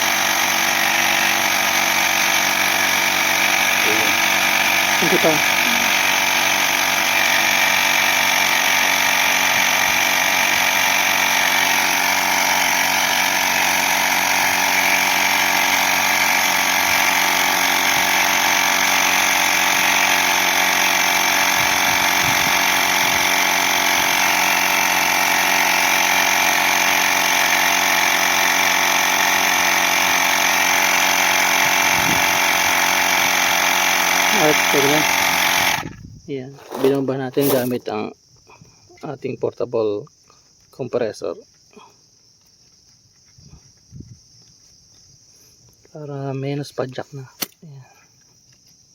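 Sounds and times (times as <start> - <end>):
electric air compressor running: 0.0 - 37.8.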